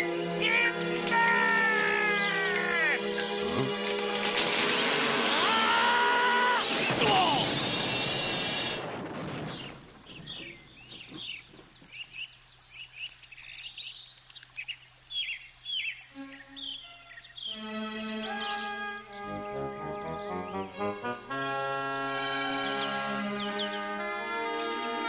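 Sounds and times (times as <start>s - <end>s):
birds chirping: 0.0s - 4.2s, 5.2s - 25.0s
loud music with falling tone: 17.6s - 25.0s.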